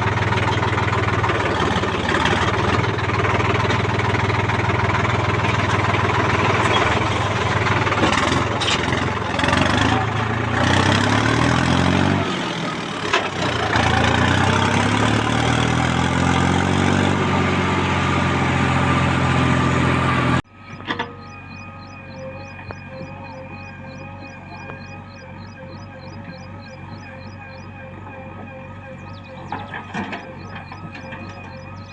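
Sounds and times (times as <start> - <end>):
heavy diesel engine running: 0.0 - 31.9.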